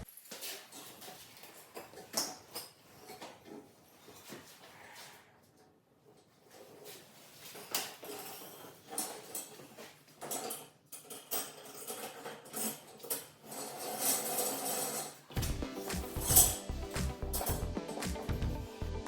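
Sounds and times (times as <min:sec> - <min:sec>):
metal hardware clinking and tapping: 0:15.4 - 0:17.7.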